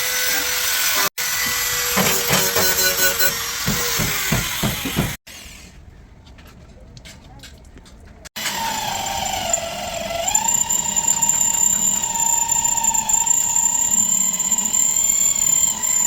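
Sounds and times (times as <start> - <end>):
power tool high whine: 8.4 - 16.0.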